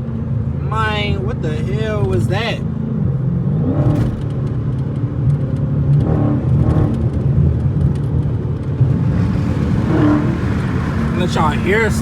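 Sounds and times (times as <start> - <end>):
car exhaust droning: 8.8 - 12.0.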